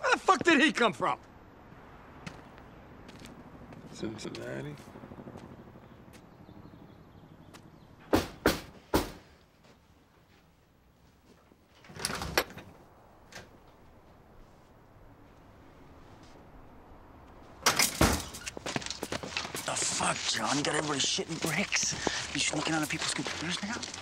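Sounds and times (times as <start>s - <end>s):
sharp knocks: 8.1s - 9.2s.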